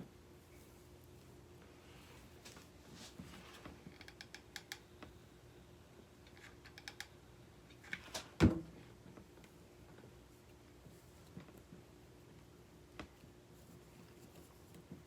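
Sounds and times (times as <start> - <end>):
small clicks and taps: 3.9 - 5.2, 6.2 - 8.0.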